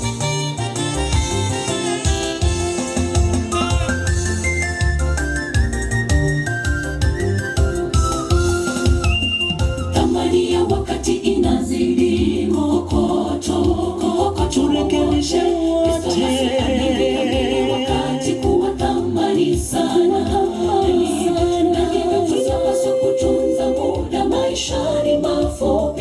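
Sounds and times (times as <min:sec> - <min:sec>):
group singing gospel in harmony: 0:07.8 - 0:26.0.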